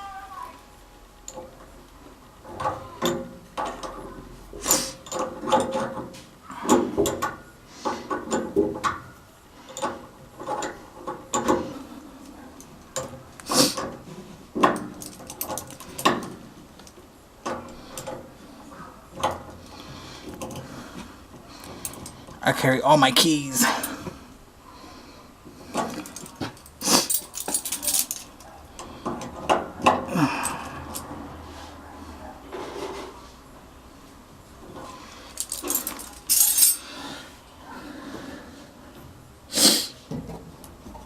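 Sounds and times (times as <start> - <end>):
hand tools and metal parts clattering: 2.4 - 24.2, 25.5 - 31.2, 34.6 - 37.2.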